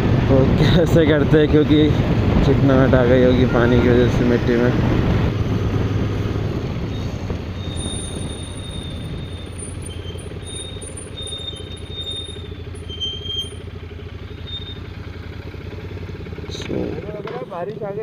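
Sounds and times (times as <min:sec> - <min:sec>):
motorcycle engine rumbling: 0:00.0 - 0:18.0.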